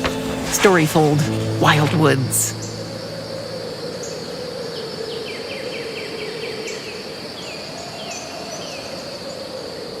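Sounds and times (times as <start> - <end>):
high insect drone: 0.0 - 10.0
low wavering hum: 0.1 - 6.1.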